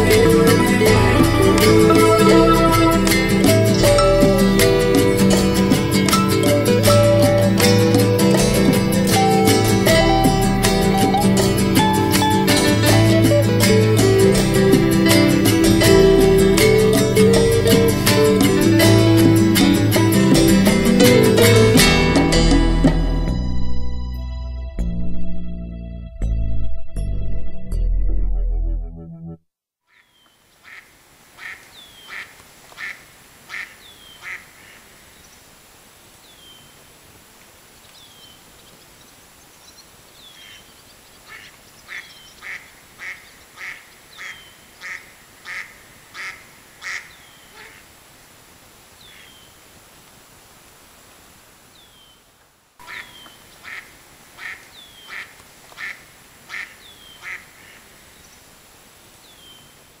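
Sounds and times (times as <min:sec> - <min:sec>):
bird calling in runs: 0:39.7 - 0:47.9, 0:52.8 - 0:58.0.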